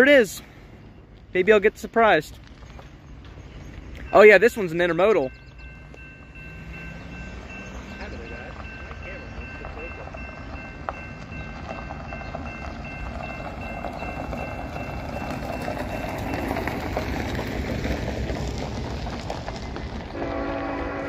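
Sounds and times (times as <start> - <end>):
diesel locomotives rumbling: 0.0 - 21.0
locomotive air horn chord: 20.2 - 21.0.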